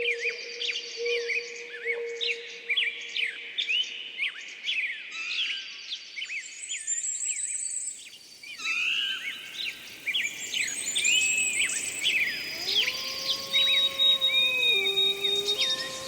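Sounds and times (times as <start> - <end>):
songbirds chirping: 8.2 - 16.0
wolf howling: 9.7 - 16.0.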